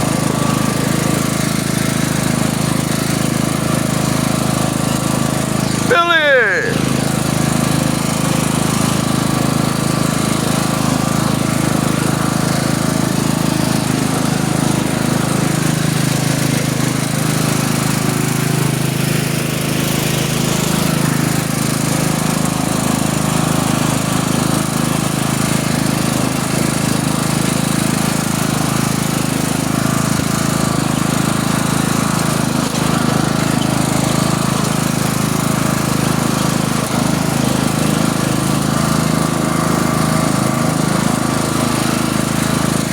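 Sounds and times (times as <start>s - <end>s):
small vehicle engine running: 0.0s - 42.9s.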